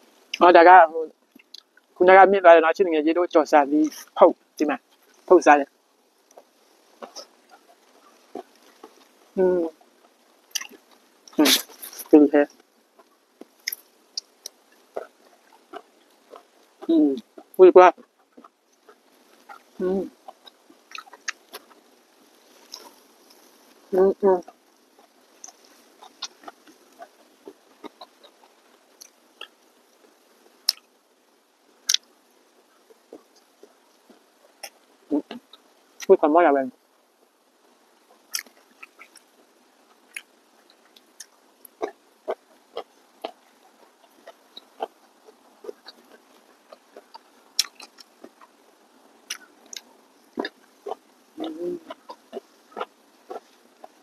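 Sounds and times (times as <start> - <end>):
person chewing and biting: 10.5 - 12.1, 25.0 - 27.2, 40.9 - 48.5
person chewing food: 10.5 - 12.1, 13.0 - 17.5, 18.3 - 23.9, 25.0 - 30.0, 38.1 - 48.6, 49.2 - 54.0.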